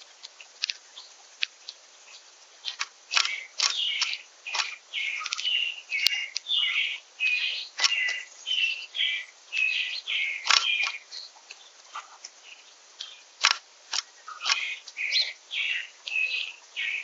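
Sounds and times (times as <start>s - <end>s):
songbirds chirping: 0.0s - 17.0s
sharp click: 2.7s - 6.5s, 7.8s - 8.2s.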